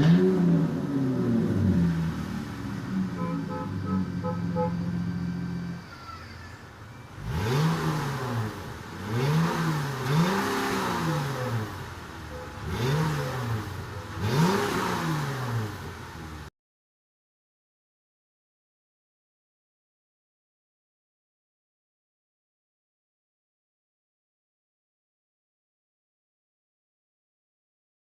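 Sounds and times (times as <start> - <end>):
car engine idling and revving: 0.0 - 6.0, 6.6 - 16.5.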